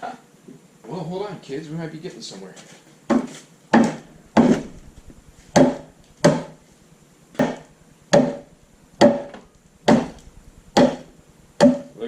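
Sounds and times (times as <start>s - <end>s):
sharp ringing knocks on metal: 5.5s - 6.6s, 7.4s - 11.9s.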